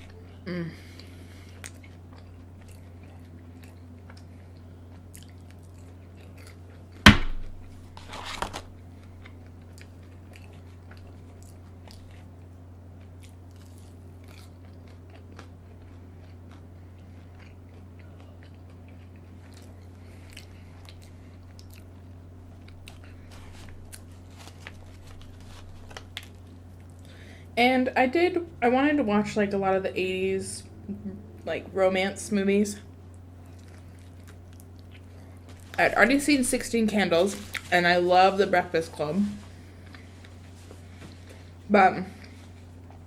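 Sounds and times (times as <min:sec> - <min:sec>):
low hum: 0:00.0 - 0:43.0
chewing and biting food: 0:01.0 - 0:07.0, 0:09.0 - 0:27.1, 0:33.1 - 0:35.8
sharp loud knock: 0:07.1 - 0:07.5.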